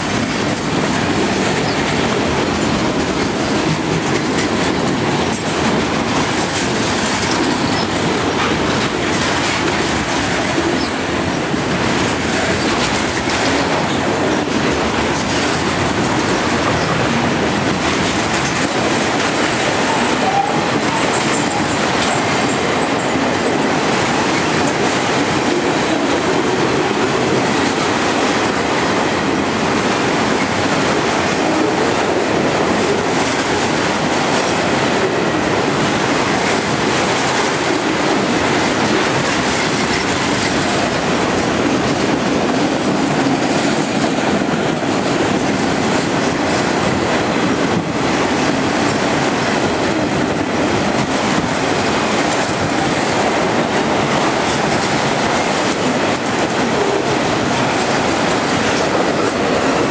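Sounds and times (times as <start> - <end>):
freight train wheels clattering: 0.0 - 59.9.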